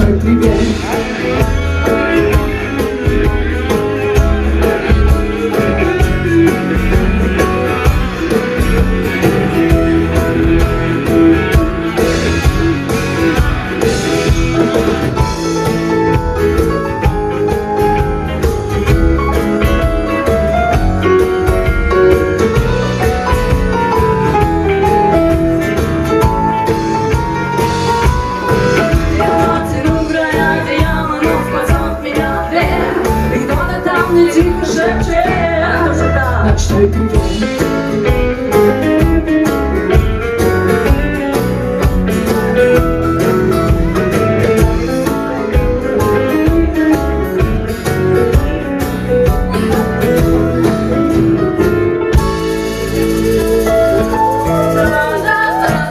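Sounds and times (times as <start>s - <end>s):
bass guitar: 0.0s - 55.9s
drum kit: 0.0s - 55.9s
electric guitar lead: 0.0s - 55.9s.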